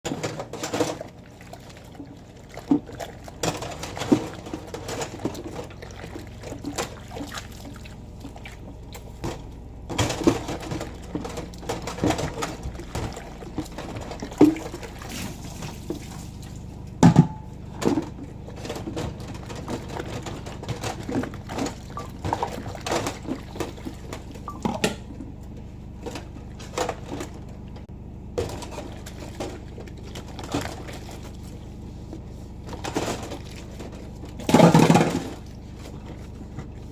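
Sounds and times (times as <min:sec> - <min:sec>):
water pouring and splashing: 0:00.1 - 0:17.0, 0:17.7 - 0:25.3, 0:28.4 - 0:36.9.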